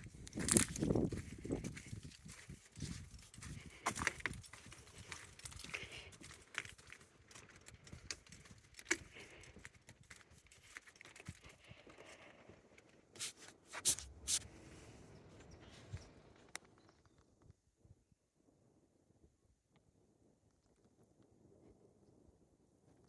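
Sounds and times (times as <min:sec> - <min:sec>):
footsteps crunching dry leaves: 0:00.0 - 0:06.8, 0:13.2 - 0:14.6.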